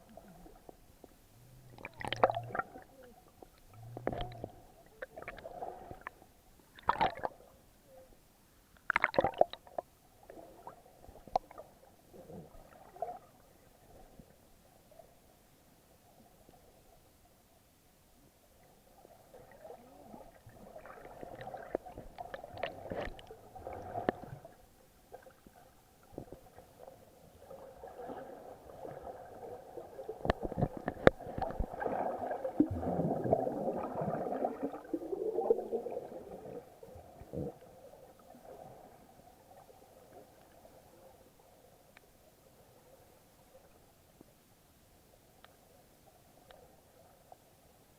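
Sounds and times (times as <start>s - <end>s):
muffled water sloshing and gurgling: 0.0s - 7.6s, 18.7s - 41.4s.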